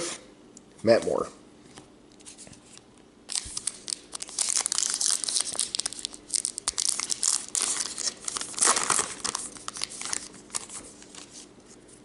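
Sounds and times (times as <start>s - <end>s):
crinkly wrapper tearing and rustling: 3.3s - 11.4s.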